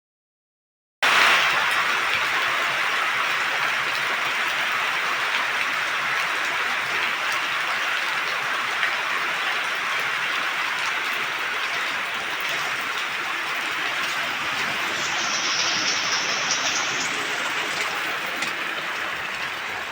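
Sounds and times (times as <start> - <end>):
heavy rain hissing: 1.0 - 19.9
faint raindrop ticks: 10.8 - 19.6.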